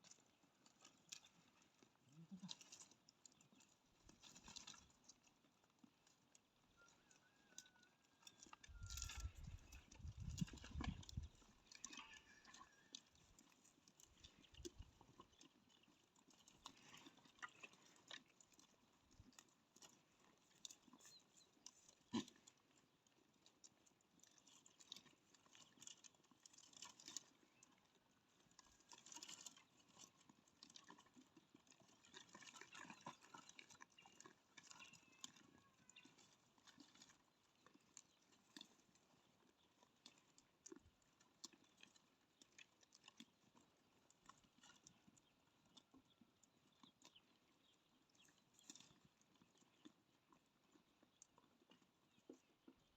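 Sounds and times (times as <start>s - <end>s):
goat hooves pattering on ground: 0.3s - 22.5s, 27.4s - 42.5s.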